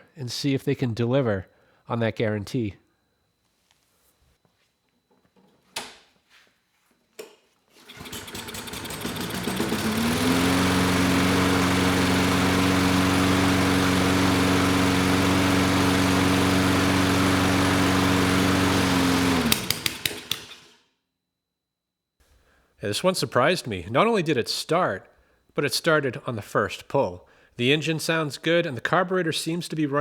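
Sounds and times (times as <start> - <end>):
lawn mower engine running: 7.8 - 20.8
engine sputtering and popping: 8.0 - 10.7, 18.8 - 20.7.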